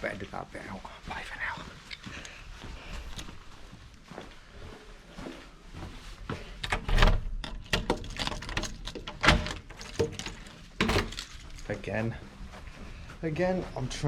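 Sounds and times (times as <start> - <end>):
knocks and clunks of handling: 6.3 - 11.7.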